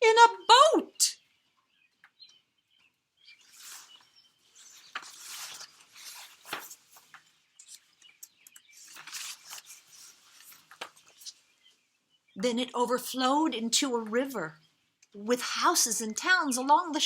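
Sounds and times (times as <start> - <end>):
birds chirping: 0.0 - 17.0
book pages rustling: 3.4 - 11.6.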